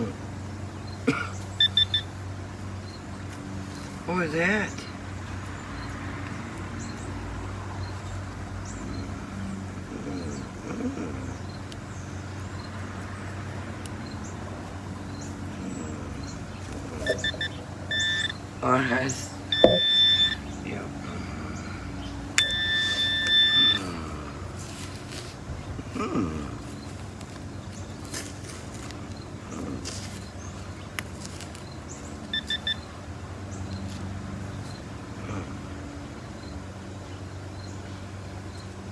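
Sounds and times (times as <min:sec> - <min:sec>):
metal detector beeps: 0:01.6 - 0:02.1, 0:17.0 - 0:18.4, 0:19.5 - 0:20.5, 0:22.4 - 0:23.9, 0:32.3 - 0:32.9.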